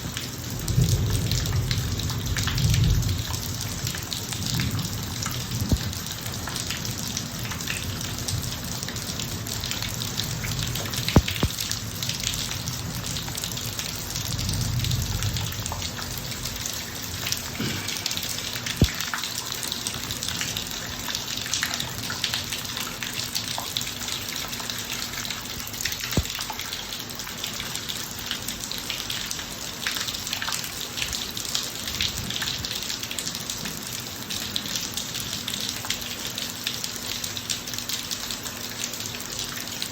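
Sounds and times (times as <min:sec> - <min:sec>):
rain falling on driveway: 0:00.0 - 0:39.9
raindrops ticking: 0:00.0 - 0:39.9
low thunder rumble: 0:00.5 - 0:06.3, 0:10.1 - 0:16.6.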